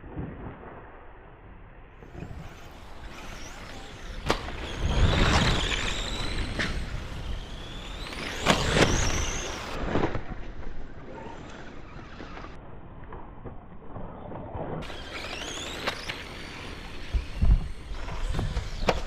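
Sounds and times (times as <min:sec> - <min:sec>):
electric motors whining: 0:02.0 - 0:09.8, 0:10.7 - 0:12.6, 0:14.8 - 0:19.0.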